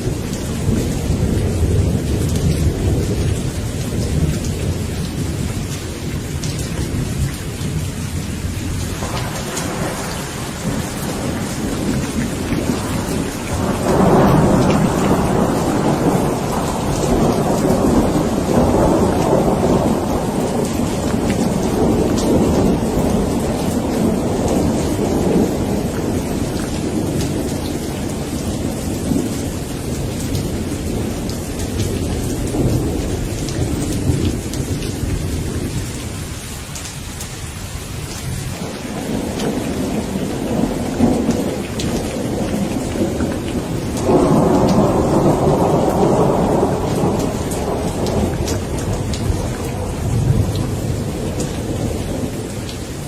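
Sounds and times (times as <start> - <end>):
thunder rumbling: 0.0 - 36.7, 37.8 - 53.0
steady rain falling: 0.0 - 53.0.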